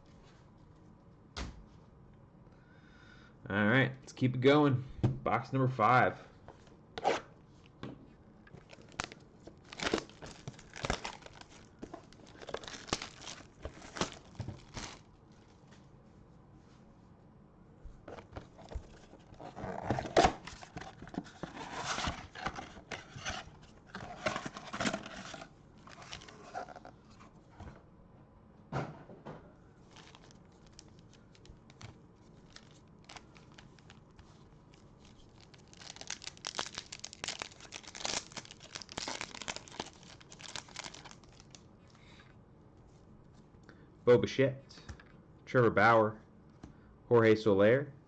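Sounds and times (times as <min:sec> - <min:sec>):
plastic wrapping tearing and crinkling: 0:08.5 - 0:15.1, 0:24.3 - 0:26.9, 0:29.8 - 0:41.6.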